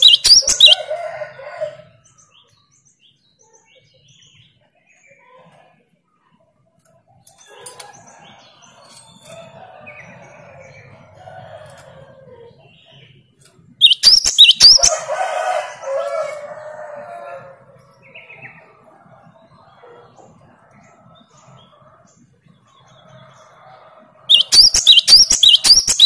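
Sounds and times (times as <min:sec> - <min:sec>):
sharp rising bird chirps: 0:00.0 - 0:00.9, 0:13.8 - 0:15.1, 0:24.3 - 0:26.0
low bird call rising and falling: 0:00.0 - 0:01.7, 0:13.8 - 0:16.4, 0:24.3 - 0:26.0
faint bird chatter: 0:00.0 - 0:11.0, 0:11.6 - 0:16.7, 0:17.6 - 0:26.0.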